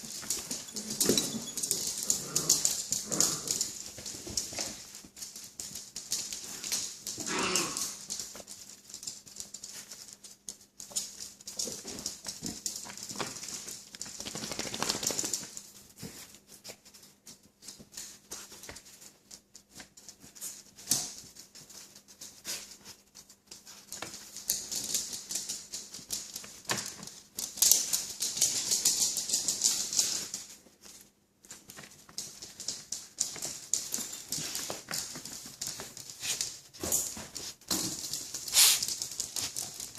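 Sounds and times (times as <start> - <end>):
puppies clicking and clattering: 0.0 - 39.9
puppy whimper: 0.6 - 2.0.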